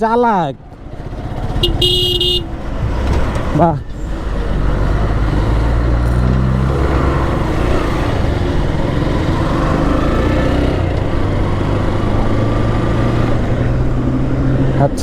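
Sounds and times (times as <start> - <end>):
road and wind noise: 0.0 - 15.0
motorcycle engine running: 0.6 - 2.8.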